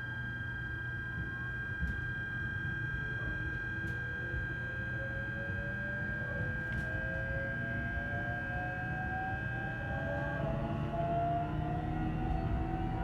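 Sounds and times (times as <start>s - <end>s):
traction motors whining: 9.9s - 13.0s.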